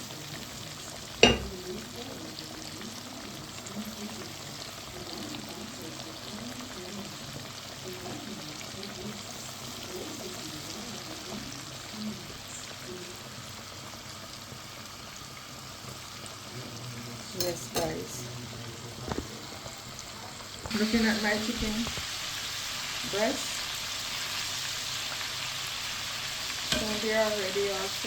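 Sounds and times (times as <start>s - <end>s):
chicken frying in oil: 0.0s - 28.0s.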